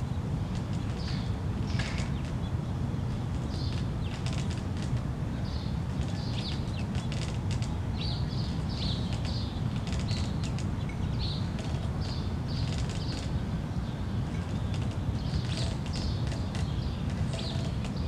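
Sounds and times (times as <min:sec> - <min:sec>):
low outdoor rumble: 0:00.0 - 0:18.0
bird chirping: 0:05.4 - 0:18.0.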